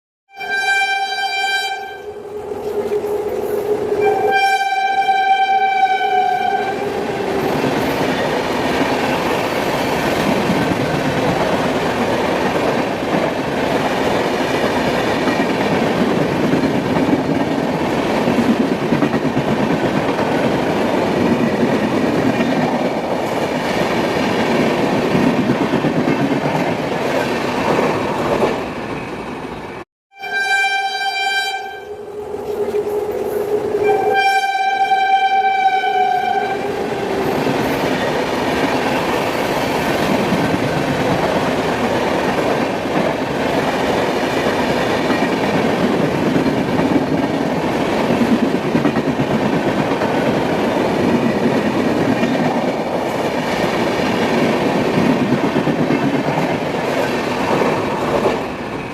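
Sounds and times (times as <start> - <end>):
train horn: 0.3 - 2.3, 3.6 - 7.6, 30.1 - 37.0
train coaches rumbling and rattling: 6.1 - 29.8, 32.2 - 58.9.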